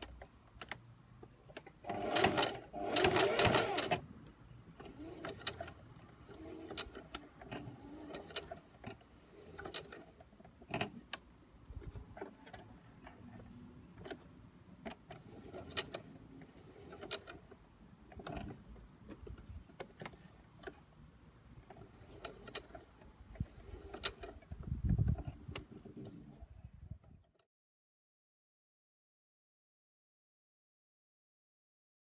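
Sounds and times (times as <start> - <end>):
sewing machine clicks and knocks: 0.0 - 4.1, 4.8 - 11.3, 14.0 - 20.9, 21.7 - 26.3.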